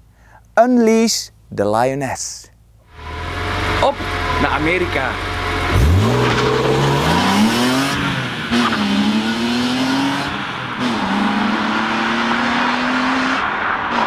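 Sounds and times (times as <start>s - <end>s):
car engine accelerating hard: 2.9s - 14.0s.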